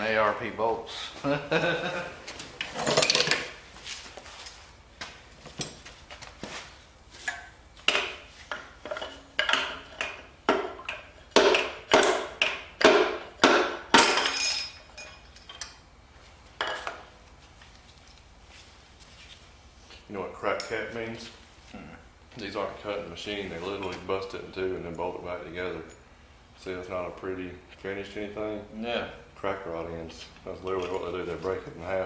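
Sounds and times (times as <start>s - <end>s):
metal engine parts clanking: 2.6s - 3.6s, 14.0s - 15.8s.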